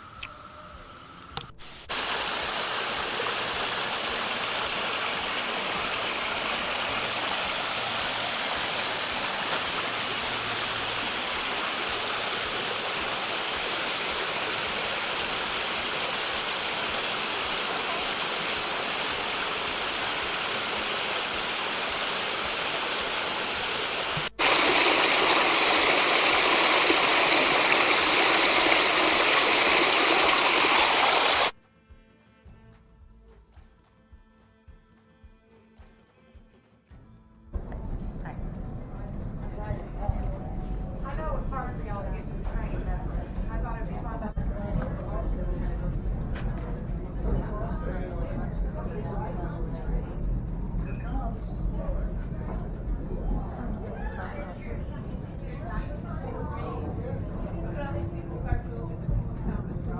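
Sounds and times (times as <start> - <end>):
rushing water of a stream: 1.6 - 31.5.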